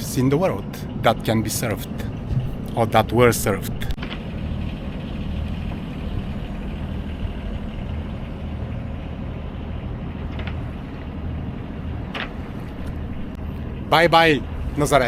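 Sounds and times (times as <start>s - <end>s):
boat engine running at low speed: 0.0s - 15.0s.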